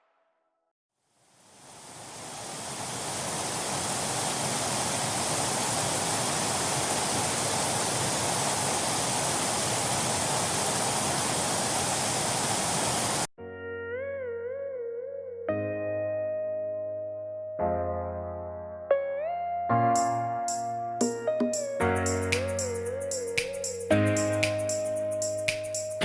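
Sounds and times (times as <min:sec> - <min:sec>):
waterfall rushing: 0:01.4 - 0:13.3.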